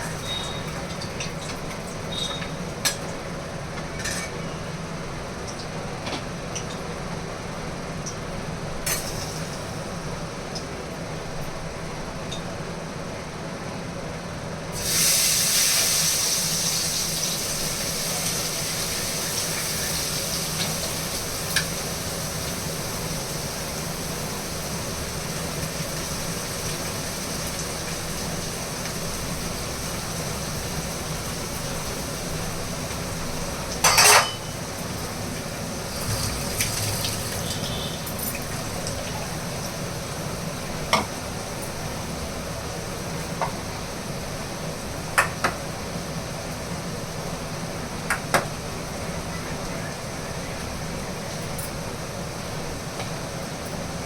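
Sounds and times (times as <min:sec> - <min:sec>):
food sizzling in a pan: 0:08.9 - 0:10.0, 0:14.7 - 0:45.6.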